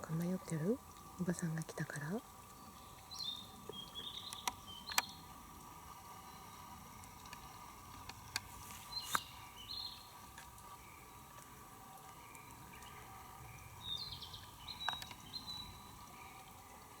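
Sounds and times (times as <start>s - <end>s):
high chirping calls: 0.0s - 5.4s, 8.8s - 11.2s, 12.2s - 16.4s
sharp clicks: 3.7s - 5.2s, 14.7s - 15.3s.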